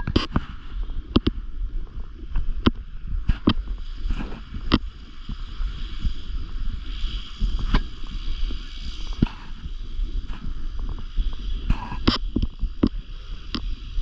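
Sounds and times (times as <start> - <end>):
sharp clicks and knocks: 0.0 - 0.5
wind buffeting microphone: 0.0 - 14.0.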